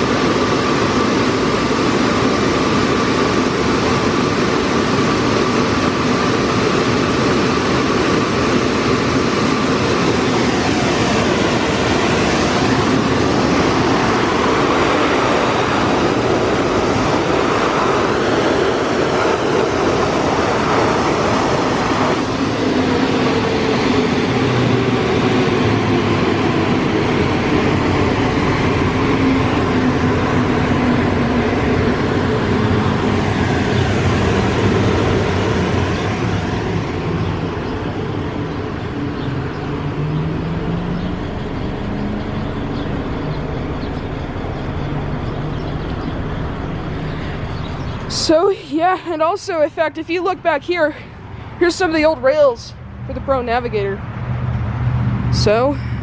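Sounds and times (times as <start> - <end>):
fan tone falling in pitch: 0.0 - 51.0
blow dryers blasting air: 0.0 - 56.0.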